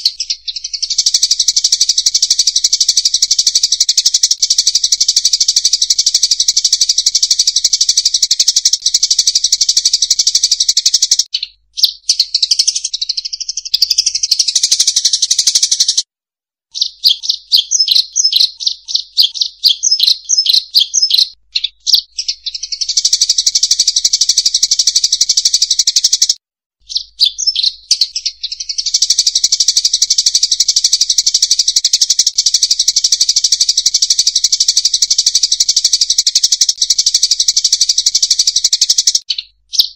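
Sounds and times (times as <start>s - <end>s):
birds chirping in dense chatter: 0.0s - 11.2s, 16.9s - 26.1s, 26.9s - 31.1s.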